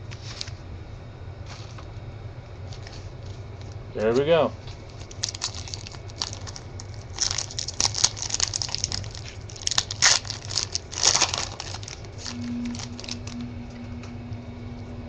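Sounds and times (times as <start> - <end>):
wrappers crinkling and tearing: 4.7 - 13.4.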